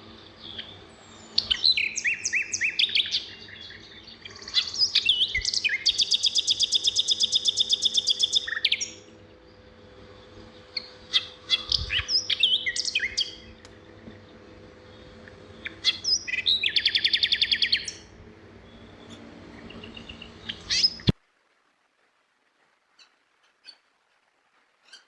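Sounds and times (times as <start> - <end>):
songbird trill: 0.0 - 21.1
bird chirps and whistles: 4.6 - 9.0, 10.8 - 13.5, 15.6 - 18.0.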